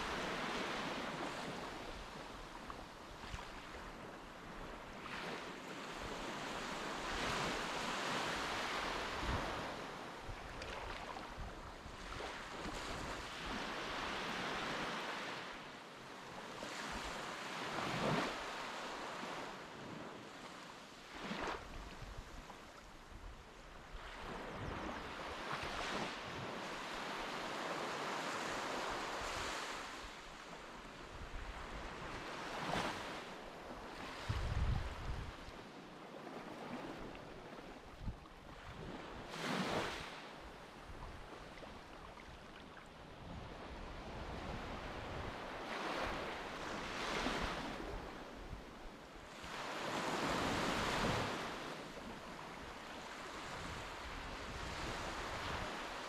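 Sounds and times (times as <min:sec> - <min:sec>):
wind buffeting microphone: 0:34.2 - 0:35.5.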